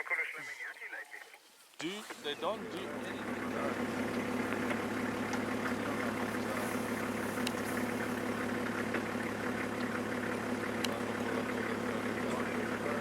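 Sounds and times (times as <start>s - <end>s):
vehicle engine idling: 2.2s - 13.0s
faint clicks: 4.0s - 8.0s, 8.8s - 11.0s.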